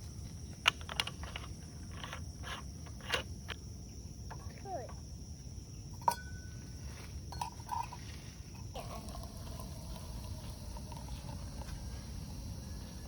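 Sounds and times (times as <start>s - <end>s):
insect drone: 0.0s - 13.0s
metal cookware clinking: 6.0s - 6.5s.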